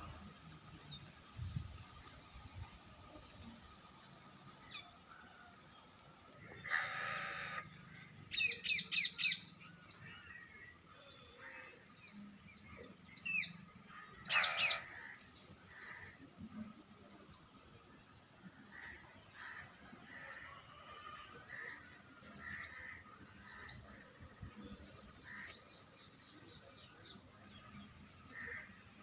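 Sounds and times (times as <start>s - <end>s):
birds calling: 6.6s - 16.2s, 18.6s - 29.0s.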